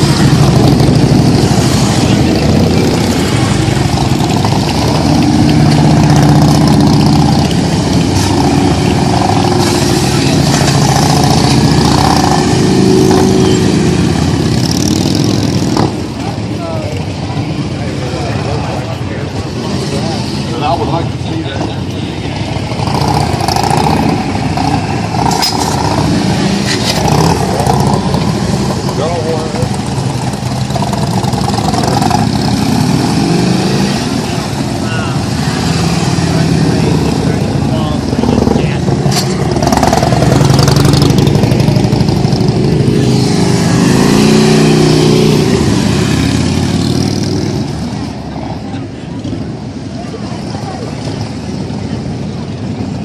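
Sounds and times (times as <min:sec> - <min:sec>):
motorcycle engines rumbling: 0:00.0 - 0:53.0.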